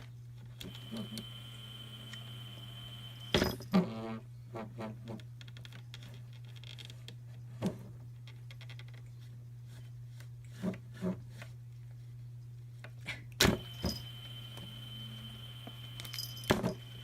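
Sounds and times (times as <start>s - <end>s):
steady low hum: 0.0s - 5.2s, 9.0s - 17.0s.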